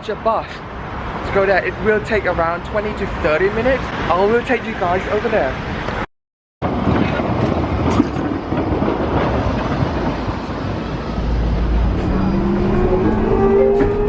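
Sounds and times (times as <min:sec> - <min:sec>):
vehicle ride rumble: 0:05.3 - 0:14.0.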